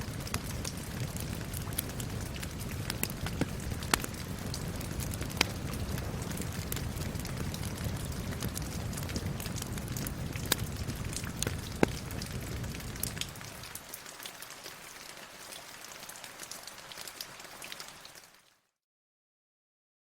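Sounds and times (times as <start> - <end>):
fireplace crackling: 0.0 - 14.4
steady rain: 0.0 - 18.7.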